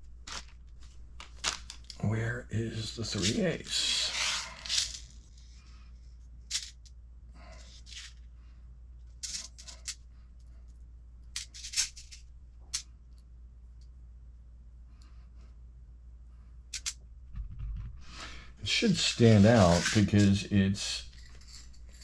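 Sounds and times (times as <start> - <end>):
steady low hum: 0.0 - 22.0
screws clicking and rustling: 4.1 - 5.3, 6.5 - 6.9, 9.2 - 10.0, 11.3 - 12.9, 16.8 - 17.0, 21.0 - 22.0.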